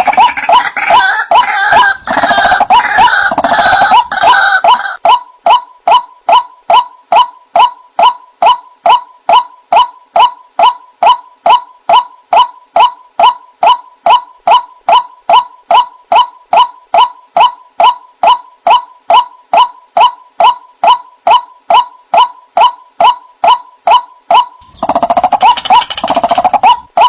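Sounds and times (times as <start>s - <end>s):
waterhen calling: 0.0s - 5.6s, 23.9s - 27.0s.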